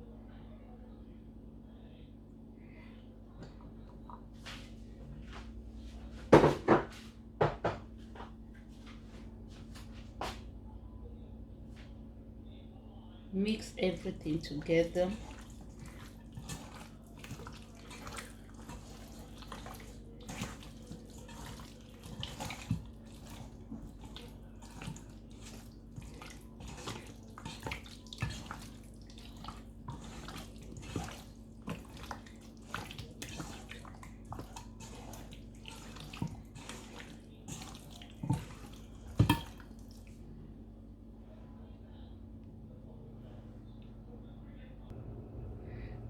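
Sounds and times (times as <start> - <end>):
wet squelching of marinade: 13.4 - 40.2.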